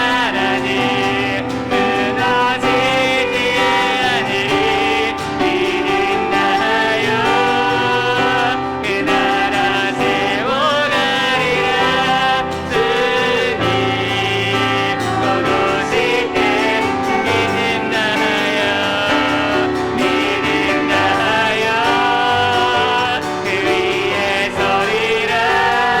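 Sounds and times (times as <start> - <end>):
piano accompaniment: 0.0 - 26.0
vocalists singing a praise song: 0.0 - 26.0.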